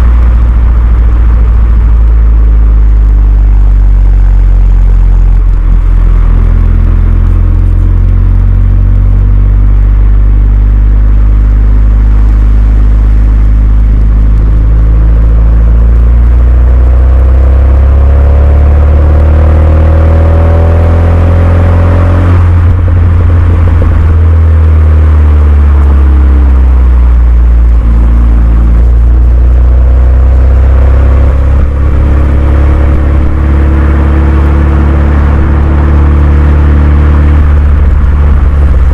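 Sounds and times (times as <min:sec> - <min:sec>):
car engine pulling under load: 0:20.2 - 0:38.9.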